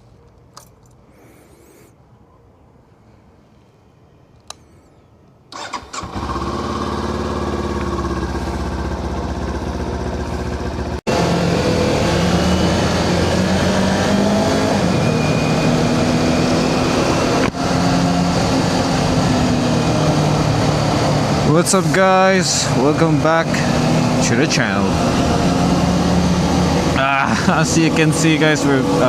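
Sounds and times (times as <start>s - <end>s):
motorcycle engine running: 6.0s - 14.9s, 15.8s - 29.0s.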